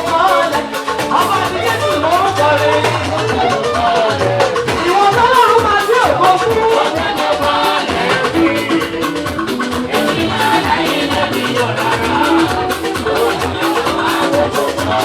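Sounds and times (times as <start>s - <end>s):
wavering lead melody: 0.0s - 6.8s, 8.0s - 15.0s
drum beat: 0.0s - 15.0s
live band music: 0.0s - 15.0s
bass: 1.0s - 5.4s, 7.9s - 15.0s.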